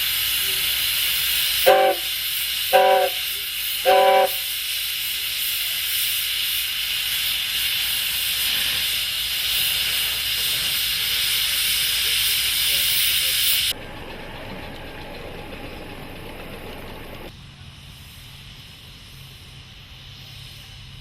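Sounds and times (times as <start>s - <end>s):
steam whistle toots: 0.0s - 5.2s
steam hissing: 0.0s - 21.0s.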